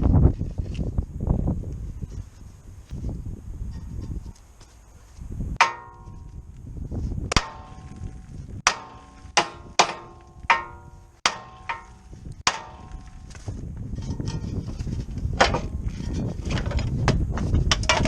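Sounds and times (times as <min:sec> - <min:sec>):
hammer striking metal: 0:05.6 - 0:06.2, 0:07.3 - 0:13.2.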